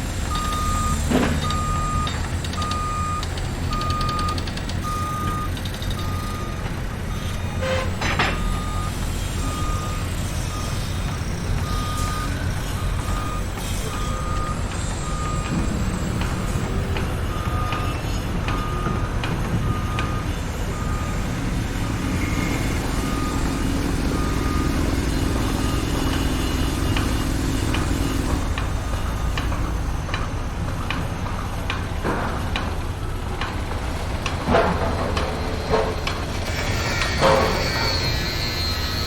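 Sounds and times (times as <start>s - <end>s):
heavy engine rumble: 0.0s - 39.0s
truck reversing alarm beeping: 0.0s - 39.0s
clanks and knocks: 7.7s - 8.7s, 26.9s - 38.7s.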